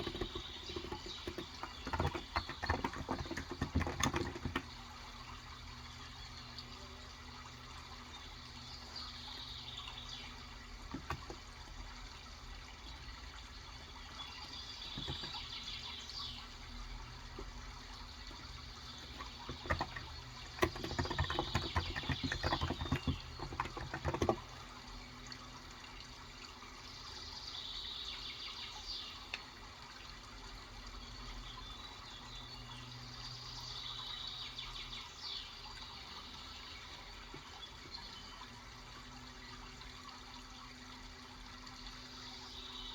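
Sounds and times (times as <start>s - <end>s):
birds chirping: 0.0s - 7.1s, 7.8s - 11.7s, 13.0s - 24.9s
running water: 0.0s - 42.9s.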